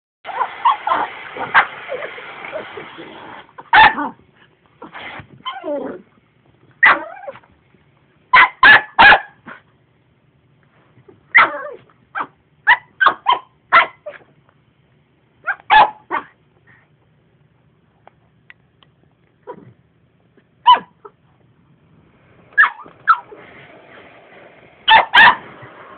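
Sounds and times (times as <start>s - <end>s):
dog barking: 3.7s - 4.2s, 6.8s - 7.2s, 8.3s - 9.6s, 11.3s - 14.2s, 15.4s - 16.4s, 20.6s - 21.0s, 22.6s - 23.2s, 24.9s - 25.5s
vacuum cleaner running: 22.1s - 25.9s.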